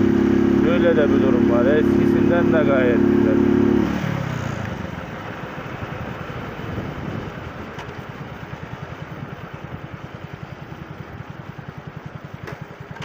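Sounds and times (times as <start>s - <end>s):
small motorcycle engine running: 0.0s - 13.0s
wind noise on microphone: 5.9s - 7.8s.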